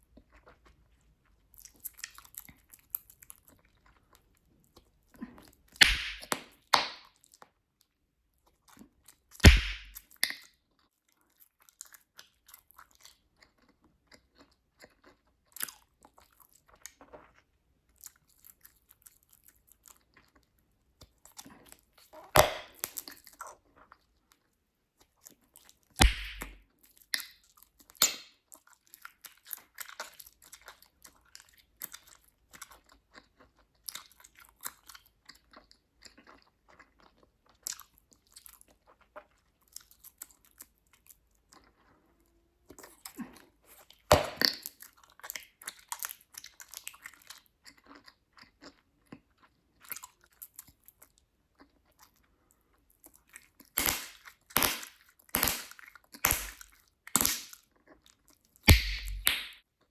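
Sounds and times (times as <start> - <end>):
bubblegum pops: 5.8 - 7.0, 9.4 - 10.0, 22.4 - 23.0, 26.0 - 26.6, 53.8 - 56.6, 57.2 - 57.5, 58.7 - 59.6
bubblegum chewing: 53.2 - 59.9.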